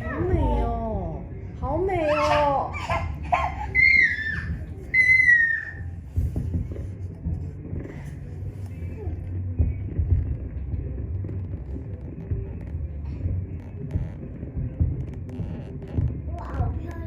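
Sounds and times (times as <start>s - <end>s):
high squeal falling in pitch: 4.0s - 5.8s.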